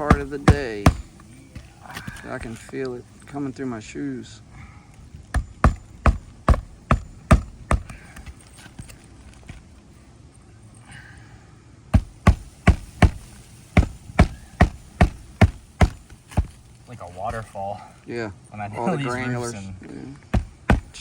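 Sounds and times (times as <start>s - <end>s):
hammer driving nails into shingles: 0.0s - 2.7s, 5.3s - 8.9s, 12.0s - 16.6s, 20.3s - 21.0s.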